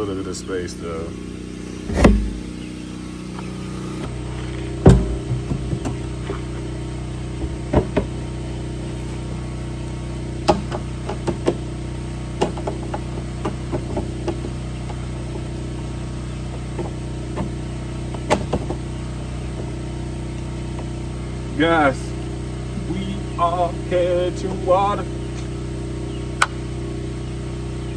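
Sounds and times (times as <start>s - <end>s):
steady mechanical hum: 0.0s - 27.9s
sharp clicks and knocks: 1.9s - 2.6s, 4.8s - 6.2s.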